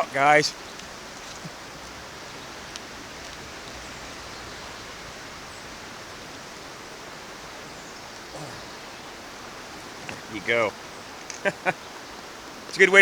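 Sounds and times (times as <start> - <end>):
river water rushing: 0.0 - 13.0
faint clicks: 0.6 - 4.3, 11.1 - 11.7.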